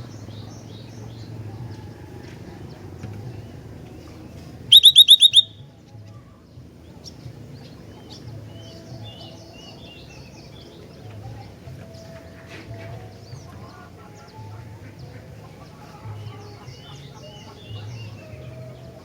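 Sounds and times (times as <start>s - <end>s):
songbird sharp chirps: 3.0s - 5.7s, 6.8s - 19.0s
songbird twittering: 4.6s - 5.6s.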